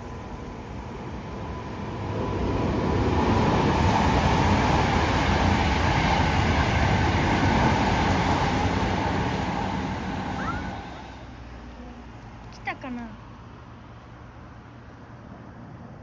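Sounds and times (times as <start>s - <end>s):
passing train rumble: 0.0s - 16.0s.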